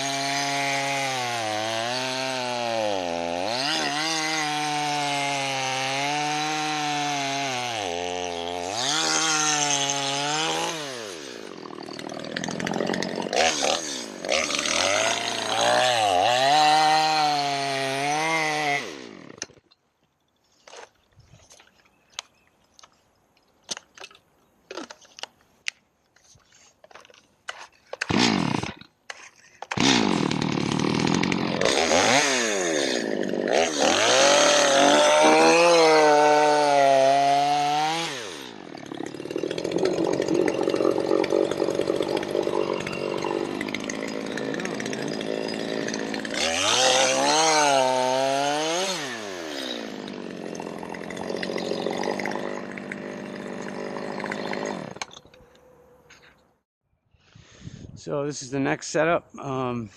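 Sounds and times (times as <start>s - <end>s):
chainsaw revving and cutting log: 0.0s - 19.6s, 28.0s - 29.0s, 29.7s - 55.2s.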